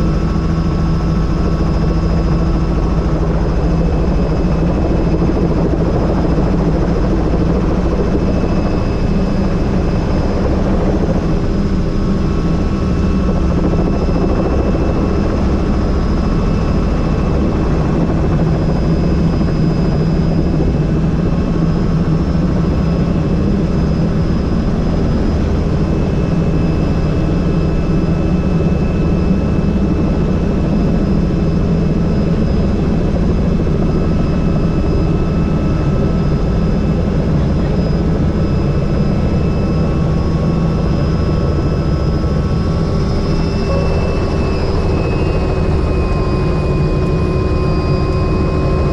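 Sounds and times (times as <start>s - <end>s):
helicopter rotor and engine: 0.0s - 48.9s
faint high whine: 33.7s - 48.9s.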